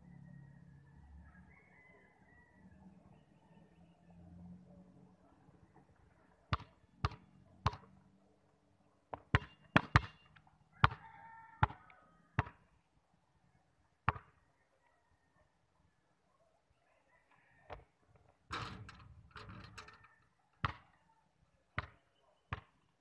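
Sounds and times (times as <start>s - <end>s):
basketball bouncing on concrete: 6.5s - 7.9s, 9.1s - 11.0s, 11.6s - 12.6s, 14.1s - 14.3s, 20.6s - 20.9s, 21.8s - 22.7s.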